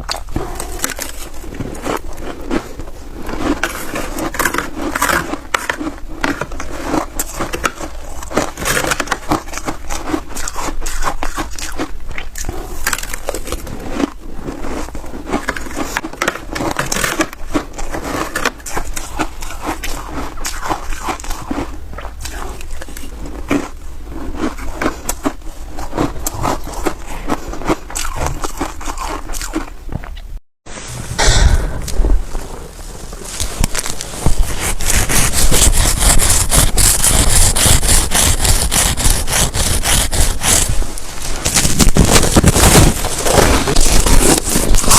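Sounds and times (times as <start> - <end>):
crunching frozen ice: 0.0 - 29.8, 31.9 - 44.9.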